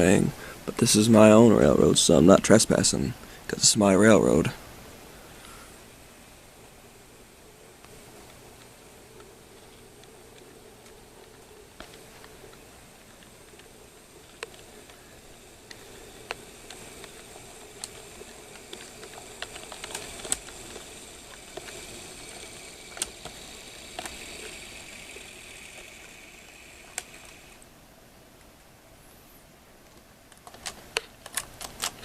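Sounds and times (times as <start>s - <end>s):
high electric motor whine: 4.2s - 27.7s
wheels clicking over rail joints: 6.6s - 27.7s, 29.9s - 32.0s.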